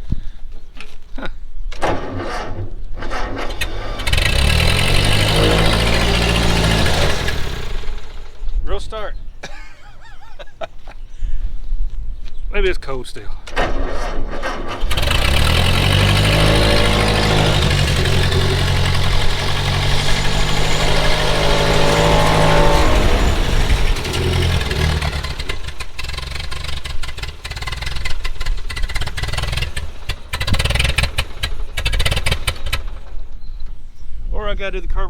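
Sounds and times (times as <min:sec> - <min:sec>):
tractor engine running unevenly: 0:01.8 - 0:08.4, 0:13.5 - 0:33.2.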